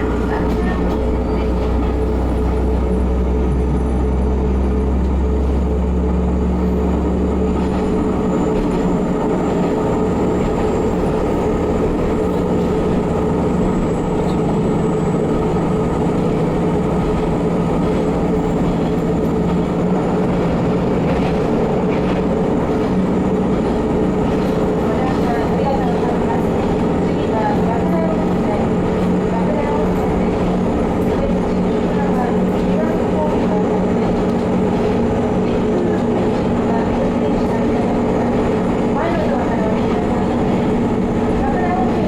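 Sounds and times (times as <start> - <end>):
railcar engine drone: 0.0 - 42.0.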